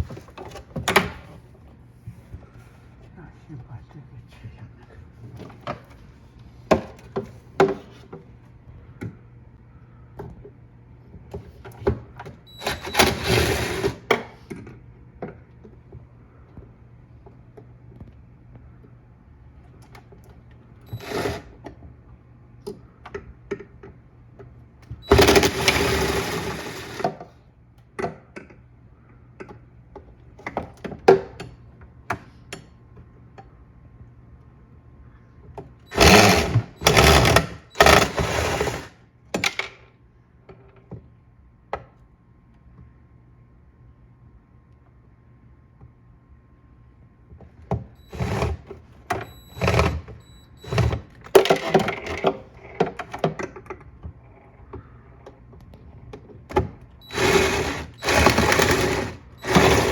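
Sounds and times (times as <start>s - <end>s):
small motor running: 35.9s - 38.9s, 57.0s - 59.9s.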